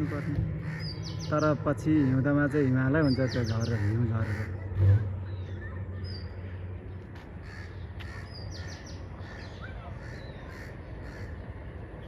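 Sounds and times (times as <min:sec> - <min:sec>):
harsh bird calls: 0:00.0 - 0:12.0
steady low rumble: 0:00.0 - 0:12.0.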